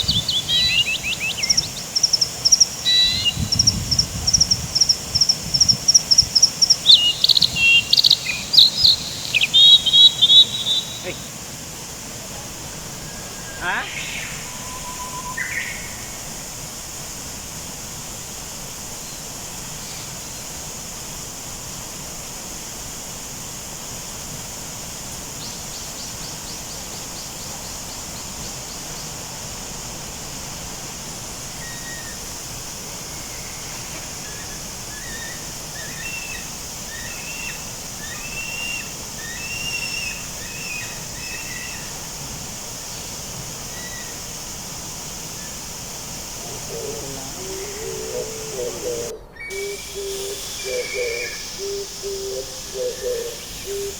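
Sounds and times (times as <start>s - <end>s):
bird trill: 0.0s - 3.8s, 6.0s - 11.3s, 47.6s - 53.9s
bird chirping: 0.0s - 11.4s, 46.5s - 53.9s
steady outdoor hiss: 0.0s - 53.9s.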